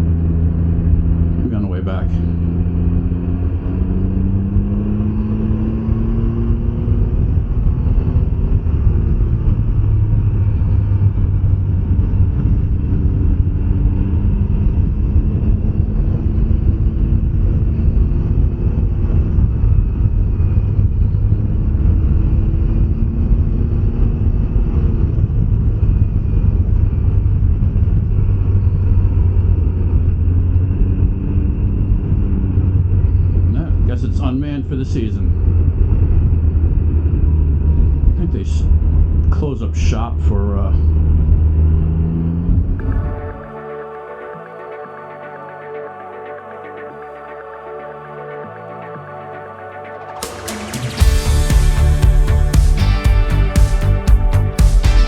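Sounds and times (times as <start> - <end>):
road and wind noise: 0.0 - 44.4
motorcycle engine running: 50.3 - 55.0.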